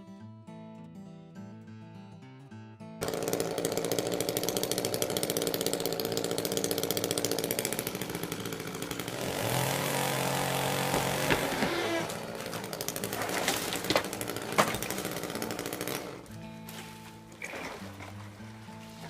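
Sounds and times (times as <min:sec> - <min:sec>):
acoustic guitar music: 0:00.0 - 0:03.0, 0:10.5 - 0:19.0
chainsaw running loud: 0:03.0 - 0:19.0.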